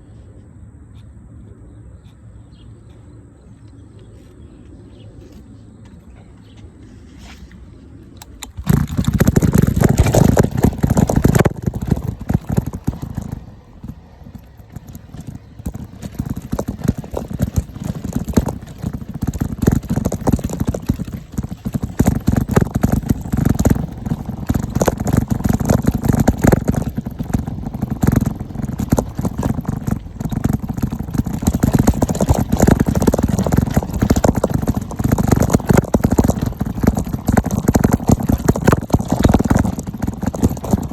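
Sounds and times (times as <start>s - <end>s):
bike rattling over bumps: 8.2s - 40.9s.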